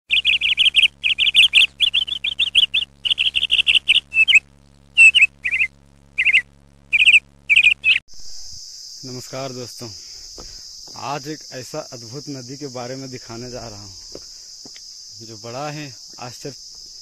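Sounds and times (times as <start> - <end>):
bird chirping: 0.1 - 4.4, 5.0 - 8.0
steady low hum: 0.1 - 17.0.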